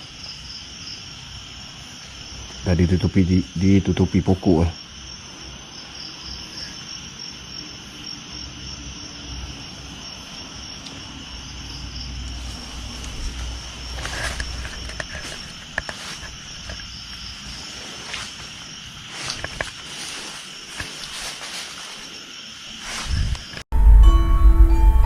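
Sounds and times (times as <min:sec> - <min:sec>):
crickets chirring: 0:00.0 - 0:23.7
clicks and rustles: 0:12.4 - 0:21.8.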